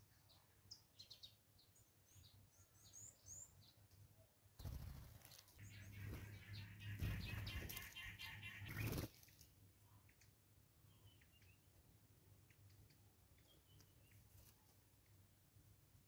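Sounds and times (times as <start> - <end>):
birds chattering rapidly: 4.6 - 9.1.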